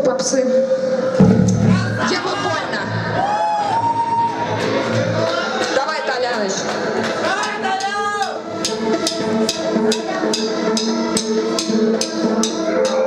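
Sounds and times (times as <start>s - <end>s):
sustained chords: 1.1s - 3.4s
drummer ticking a beat: 1.2s - 2.7s.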